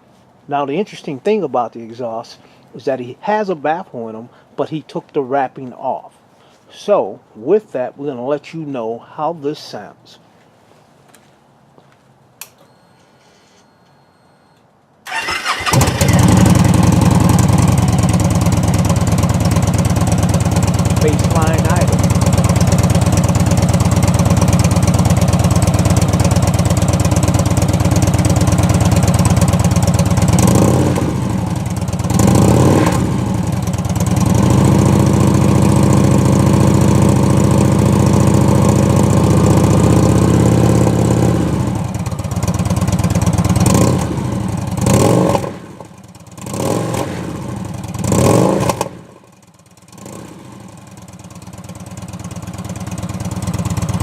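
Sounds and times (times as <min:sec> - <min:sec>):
motorcycle engine revving: 0:15.1 - 0:54.0.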